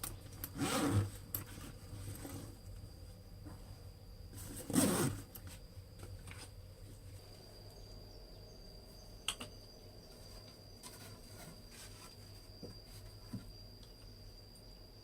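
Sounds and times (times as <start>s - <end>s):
high-pitched insect drone: 6.5s - 15.0s.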